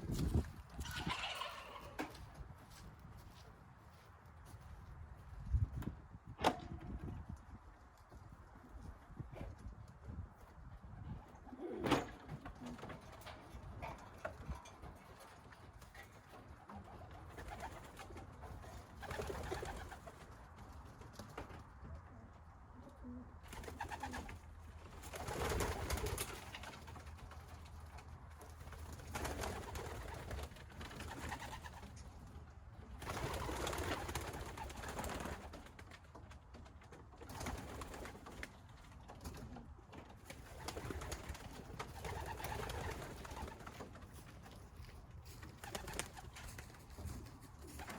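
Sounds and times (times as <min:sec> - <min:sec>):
pigeons cooing: 0:11.4 - 0:12.2.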